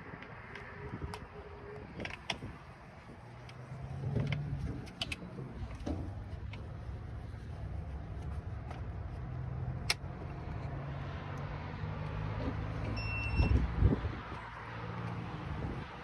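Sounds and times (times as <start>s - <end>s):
road noise: 0.0s - 16.0s
short high beep: 13.0s - 13.6s.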